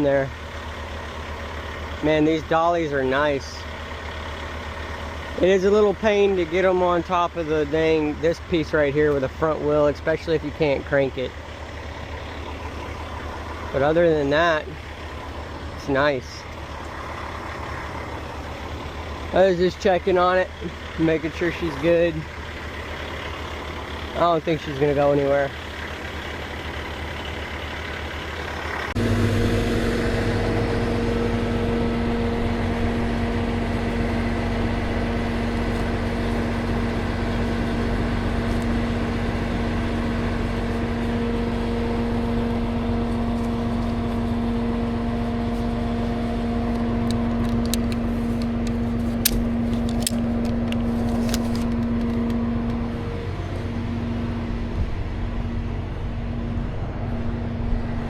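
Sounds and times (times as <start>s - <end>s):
truck engine humming drone: 0.0s - 58.0s
sharp clicks: 47.0s - 52.8s.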